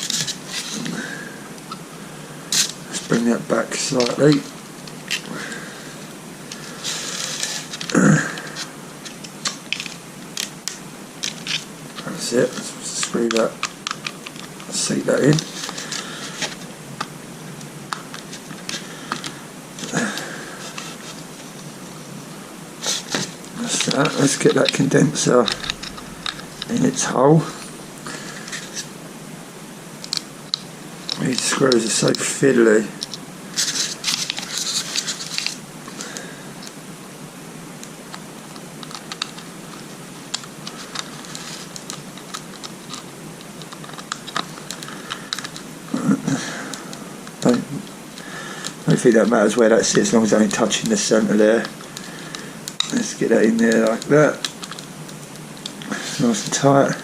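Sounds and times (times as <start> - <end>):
steady background hiss: 0.0 - 57.0
handling noise: 3.9 - 29.2.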